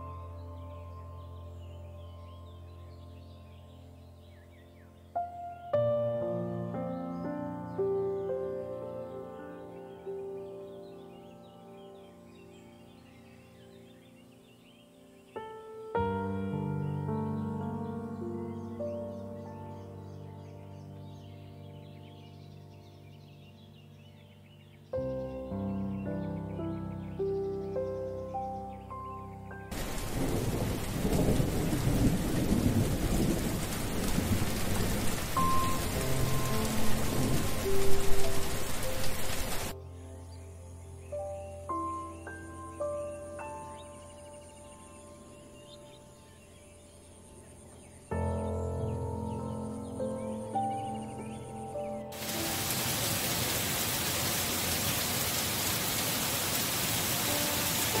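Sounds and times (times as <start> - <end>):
heavy rain on wet surface: 29.7 - 39.7, 52.2 - 58.0
low rumble of thunder: 29.7 - 39.7.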